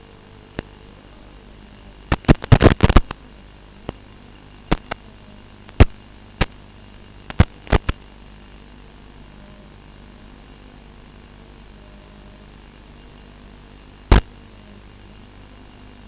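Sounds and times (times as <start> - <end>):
video receiver hiss: 0.0 - 16.0
sharp crackling pops: 0.5 - 0.8, 2.0 - 8.2, 14.1 - 14.4.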